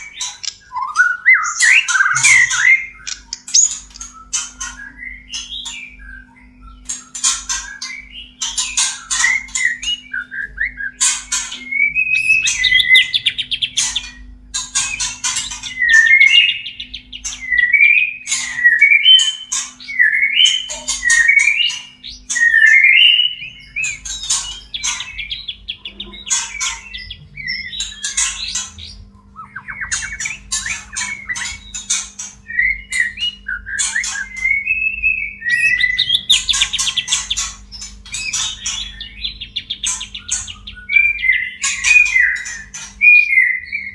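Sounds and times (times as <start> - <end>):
bird singing whistled phrases: 0.7 - 6.8, 15.8 - 24.0, 32.5 - 37.1.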